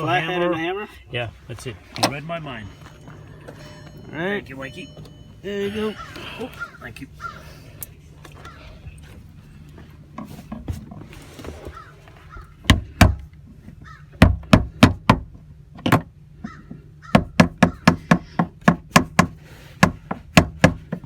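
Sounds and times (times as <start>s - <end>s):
distant crows cawing: 2.6s - 9.3s, 11.6s - 14.5s, 16.4s - 18.4s.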